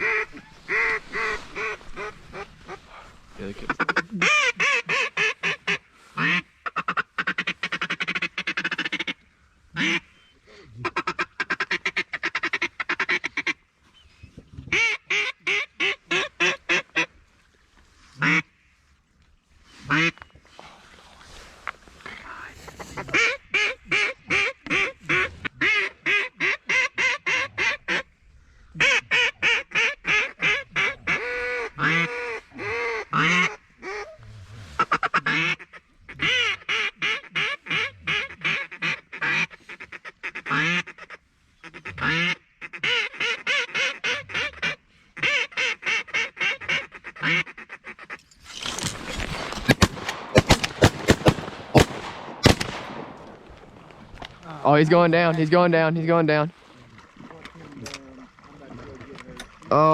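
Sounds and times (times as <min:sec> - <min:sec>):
duck quacks: 0:00.0 - 0:09.2, 0:22.8 - 0:28.1, 0:28.8 - 0:34.1, 0:34.8 - 0:48.2
sharp cracks: 0:48.4 - 0:54.5.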